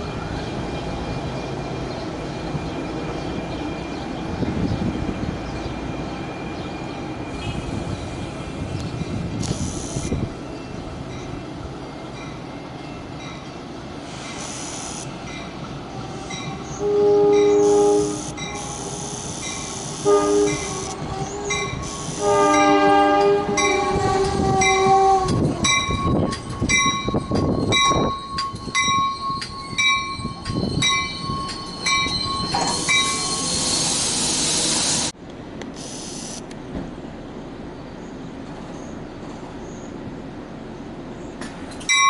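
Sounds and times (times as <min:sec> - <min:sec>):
low train rumble: 0:00.0 - 0:42.0
two-tone train horn: 0:14.4 - 0:15.1, 0:16.7 - 0:25.4.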